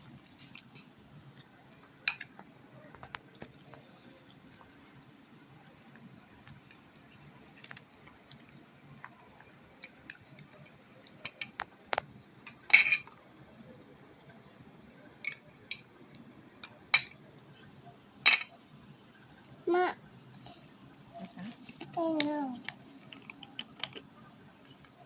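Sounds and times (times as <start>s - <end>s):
cutlery clinking against dish: 12.7s - 13.1s, 18.3s - 18.6s.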